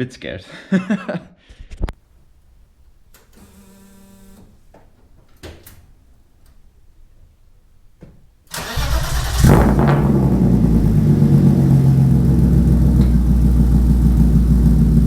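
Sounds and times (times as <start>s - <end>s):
car engine cranking and running: 8.5s - 15.0s.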